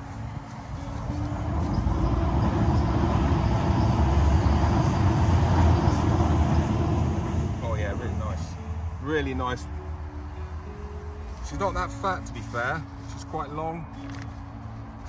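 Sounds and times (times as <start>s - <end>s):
train rumbling past: 0.8s - 10.3s.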